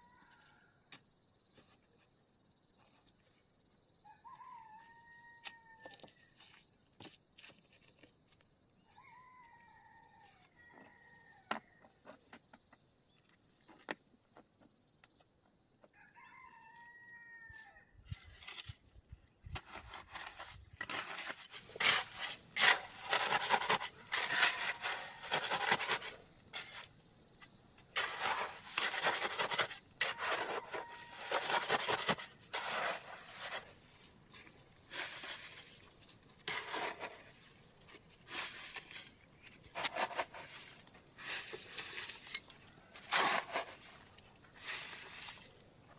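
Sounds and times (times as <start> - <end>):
rustling scraping noise: 19.5 - 27.0, 28.0 - 45.9.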